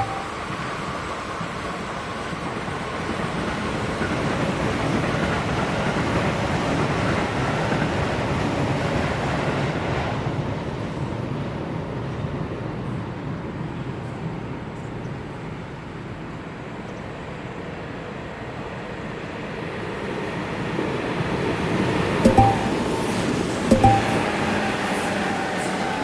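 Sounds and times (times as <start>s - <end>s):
electric train running past: 0.0s - 10.5s.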